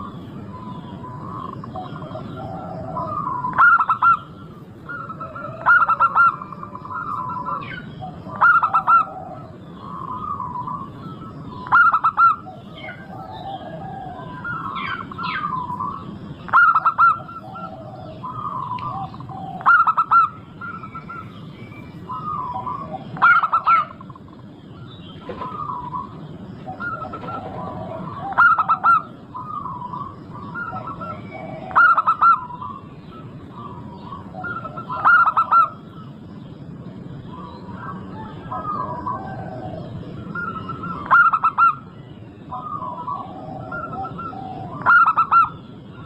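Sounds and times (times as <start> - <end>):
dove cooing: 0.0 - 36.2, 37.1 - 46.0.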